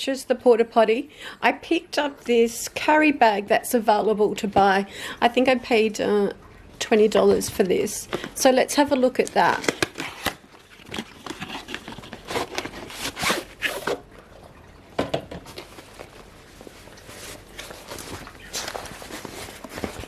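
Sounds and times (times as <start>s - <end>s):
zip rasping open: 12.4s - 14.0s
fabric bag handled: 15.7s - 20.0s.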